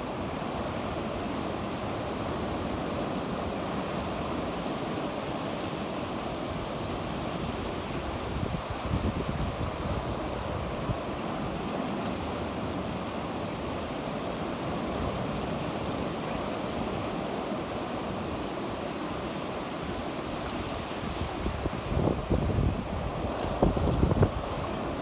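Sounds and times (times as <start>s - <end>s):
sea waves washing onto shore: 0.0s - 25.0s
wind buffeting microphone: 8.2s - 11.0s, 21.0s - 25.0s.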